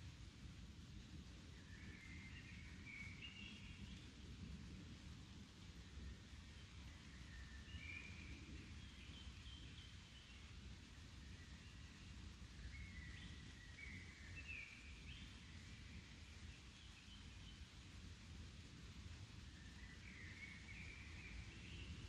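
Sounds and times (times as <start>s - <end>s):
whistled birdsong: 1.5s - 4.2s, 5.9s - 17.9s, 19.4s - 22.0s.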